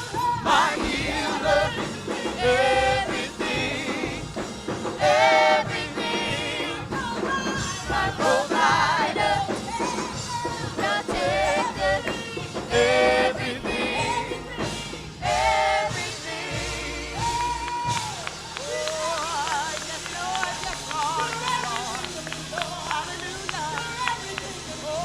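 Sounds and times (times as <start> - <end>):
full band accompaniment: 0.0 - 25.0
person singing with vibrato: 5.0 - 25.0.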